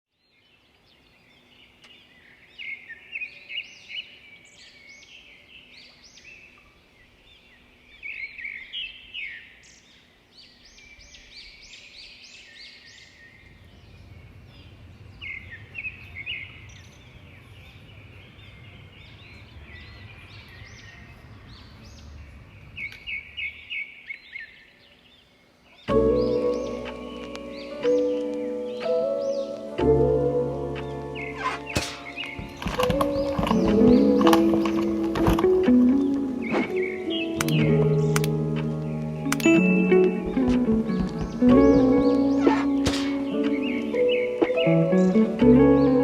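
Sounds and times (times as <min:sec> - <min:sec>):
birds chirping and calling: 0:00.7 - 0:46.0
faint low rumble: 0:13.3 - 0:23.6
bursts of rapid bird calls: 0:30.9 - 0:45.3.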